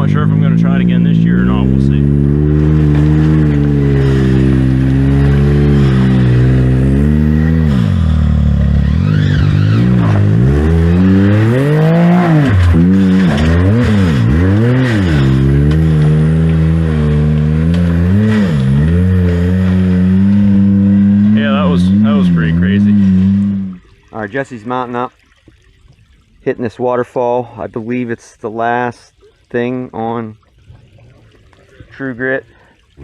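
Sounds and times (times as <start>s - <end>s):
engine running and revving: 0.0s - 23.8s.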